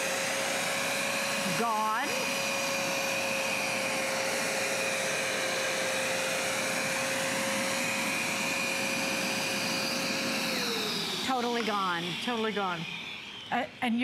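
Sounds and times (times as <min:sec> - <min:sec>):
carpet cleaner motor whine: 0:00.0 - 0:14.0.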